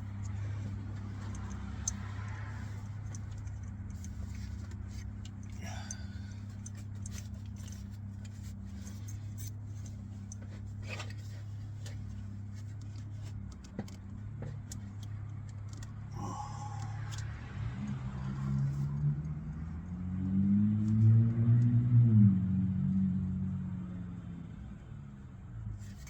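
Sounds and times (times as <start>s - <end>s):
small metal parts and tools clicking: 0.0s - 16.0s
steady low hum: 0.0s - 18.8s.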